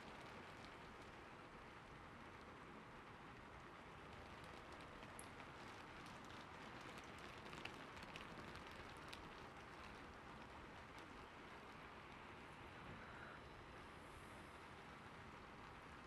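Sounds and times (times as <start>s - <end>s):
faint steady hiss: 0.0s - 16.0s
light irregular ticks and clicks: 3.6s - 12.3s.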